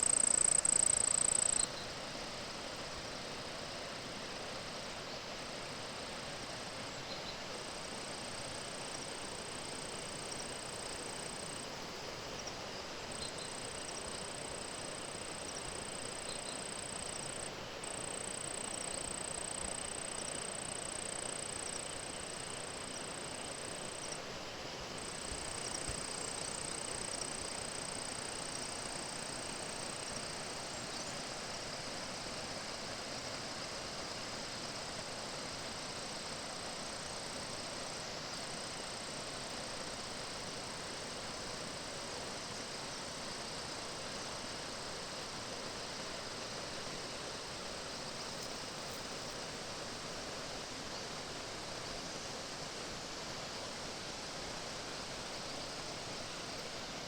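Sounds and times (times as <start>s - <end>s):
crickets trilling: 0.0s - 1.8s, 7.8s - 24.3s, 24.9s - 31.8s
steady background hiss: 0.0s - 57.0s.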